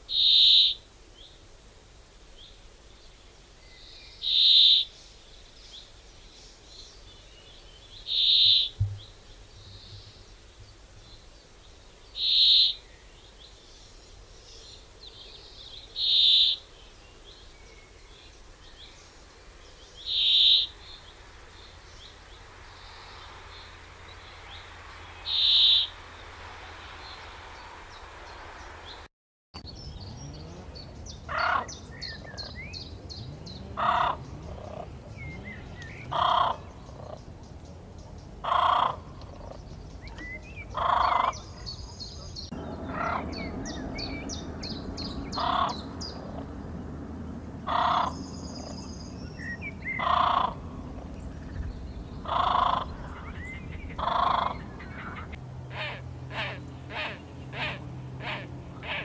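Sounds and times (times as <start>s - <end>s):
lower bird call: 0.0s - 0.8s, 3.7s - 5.0s, 7.0s - 10.3s, 12.1s - 13.3s, 14.6s - 18.9s, 19.9s - 29.1s, 38.4s - 46.5s, 47.6s - 59.0s
loud high bird call: 0.1s - 0.8s, 20.0s - 20.9s, 23.6s - 26.2s, 42.6s - 45.9s
faint bird chirping: 2.3s - 46.8s.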